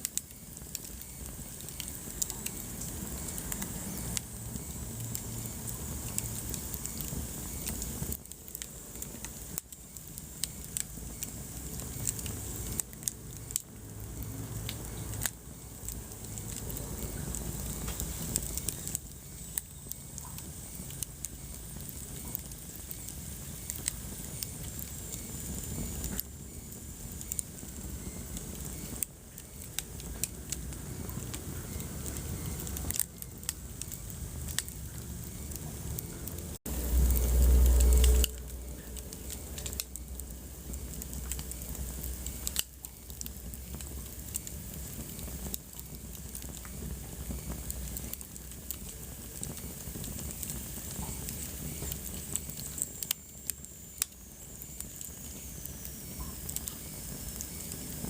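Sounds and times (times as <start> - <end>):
wood fire crackling: 0.0 - 58.0
loud low rumble: 34.9 - 40.9.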